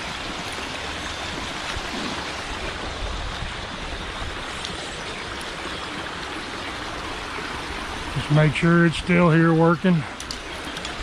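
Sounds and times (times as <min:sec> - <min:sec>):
creek water rushing over dam: 0:00.0 - 0:11.0
wind gusts on microphone: 0:01.4 - 0:05.0.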